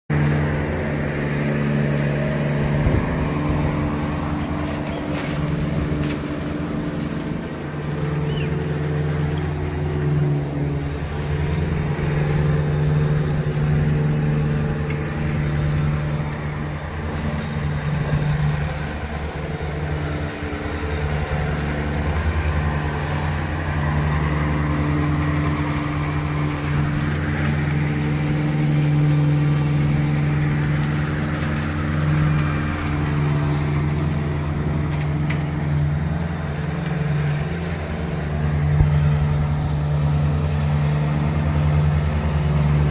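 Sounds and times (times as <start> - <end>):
lawn mower engine drone: 0.1 - 42.9.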